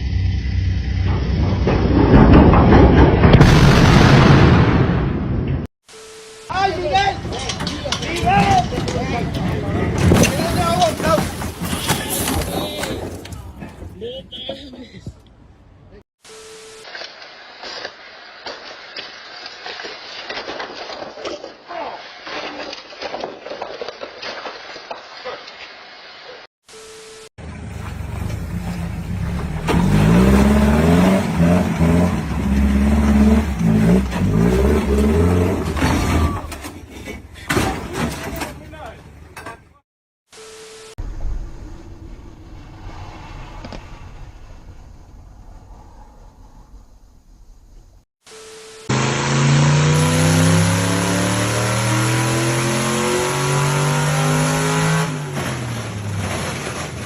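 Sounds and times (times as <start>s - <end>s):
car engine revving hard: 29.7s - 35.7s, 48.9s - 55.3s.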